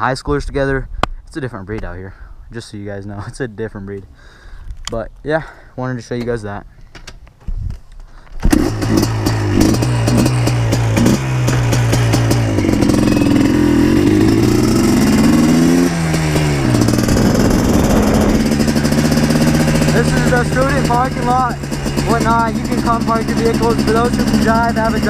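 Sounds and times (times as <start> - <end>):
two-stroke engine running: 8.5 - 25.0.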